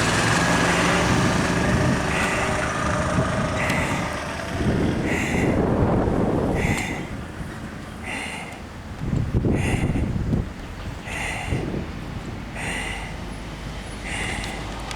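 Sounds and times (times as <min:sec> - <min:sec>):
monster truck engine running: 0:00.0 - 0:08.2.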